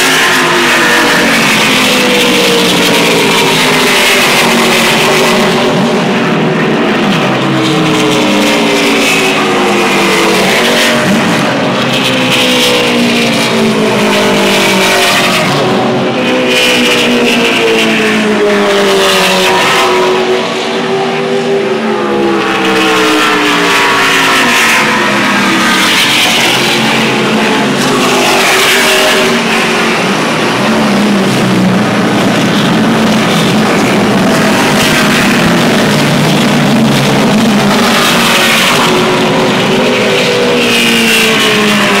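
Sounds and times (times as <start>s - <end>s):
race truck engines passing by: 0.0s - 42.0s.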